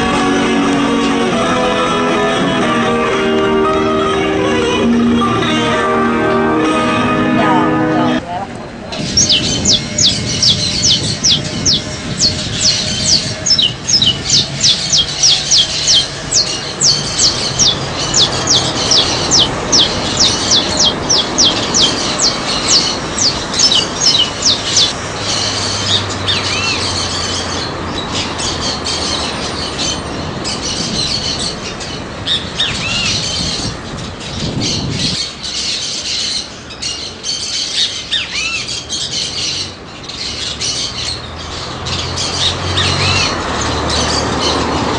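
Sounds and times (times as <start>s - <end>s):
bird calls and squawks: 8.9s - 44.9s.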